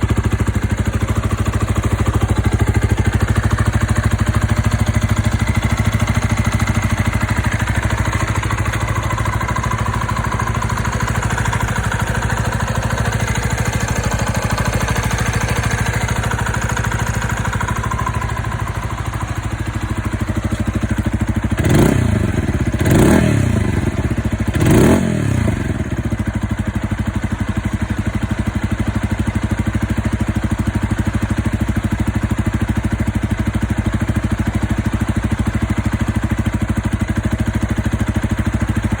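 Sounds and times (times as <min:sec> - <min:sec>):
motorcycle engine revving: 0:00.0 - 0:26.6
motorcycle engine idling: 0:00.0 - 0:39.0.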